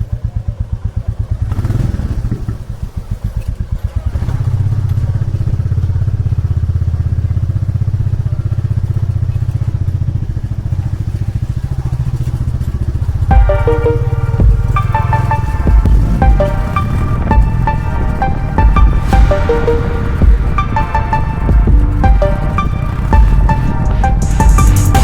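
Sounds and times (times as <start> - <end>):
motorcycle engine pulsing: 0.0 - 25.0.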